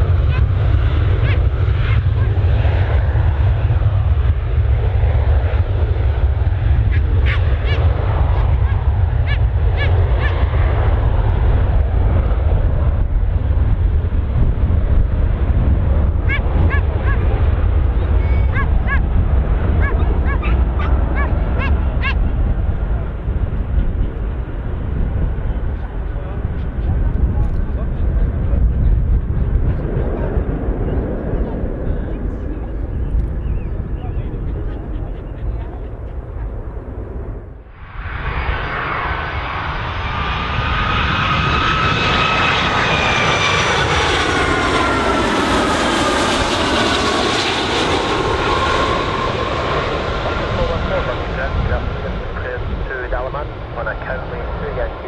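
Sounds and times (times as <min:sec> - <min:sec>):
airliner engines whine: 0:00.0 - 0:55.0
steady low rumble: 0:00.0 - 0:55.0
birds calling: 0:19.8 - 0:22.2, 0:32.5 - 0:36.6.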